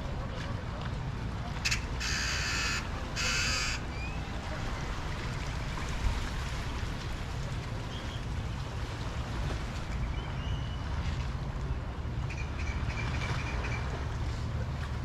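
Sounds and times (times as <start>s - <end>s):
surf and wind rumble: 0.0s - 15.0s
harsh raspy bird calls: 1.6s - 4.2s.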